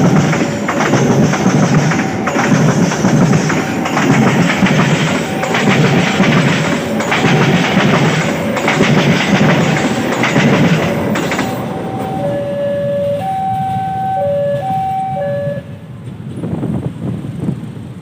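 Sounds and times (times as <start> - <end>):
wheels clattering on rails: 0.0 - 12.2
train rumbling past: 0.0 - 18.0
two-tone locomotive horn: 11.8 - 15.9.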